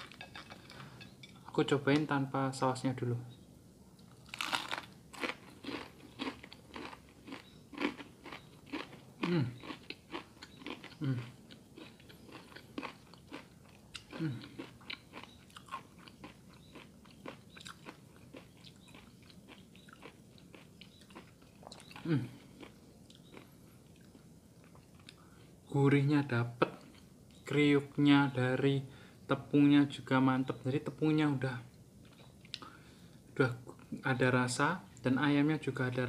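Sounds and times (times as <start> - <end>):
crunching fried chicken: 4.1 - 25.2.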